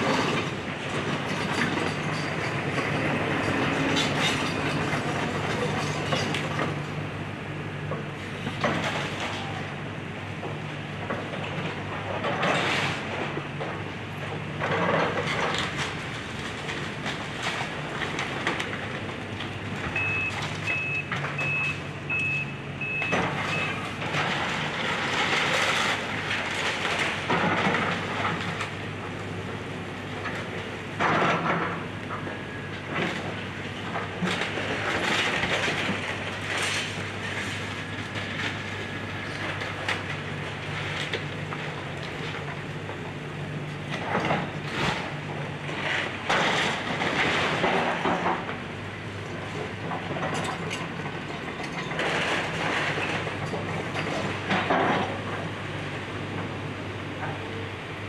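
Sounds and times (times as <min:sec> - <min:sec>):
excavator engine running: 0:00.0 - 0:58.0
backup alarm beeping: 0:20.0 - 0:23.8
debris crashing and scraping: 0:23.3 - 0:28.8, 0:43.9 - 0:48.5, 0:49.6 - 0:55.5.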